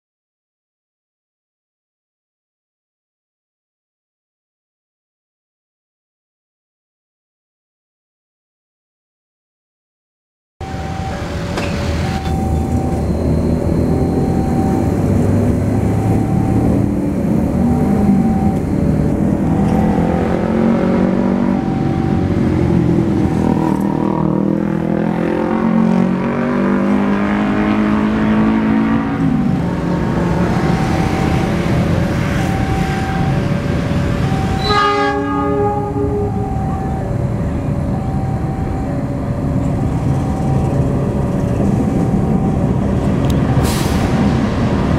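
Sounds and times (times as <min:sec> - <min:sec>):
crossing signal two-tone chime: 0:10.6 - 0:24.2, 0:29.8 - 0:44.4
diesel locomotive engine: 0:10.6 - 0:44.9
train horn blast: 0:34.5 - 0:36.4.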